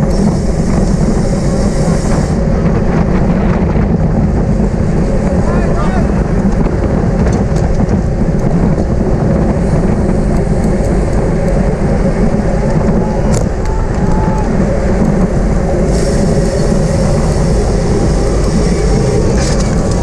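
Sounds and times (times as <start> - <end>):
tyres rumbling on road: 0.0 - 20.0
wind rush: 0.0 - 20.0
bicycle clicks: 4.9 - 20.0.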